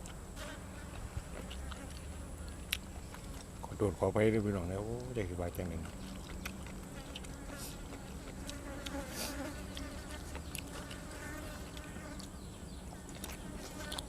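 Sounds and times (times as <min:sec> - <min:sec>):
flying insect buzzing: 0:06.9 - 0:12.2.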